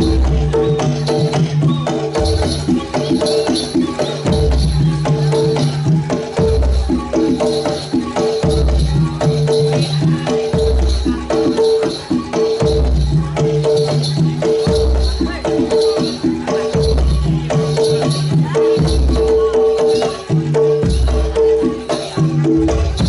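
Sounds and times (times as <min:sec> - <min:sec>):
drums: 0:00.0 - 0:23.0
gamelan-style melody: 0:00.0 - 0:23.0
rattling jingles: 0:00.0 - 0:23.0.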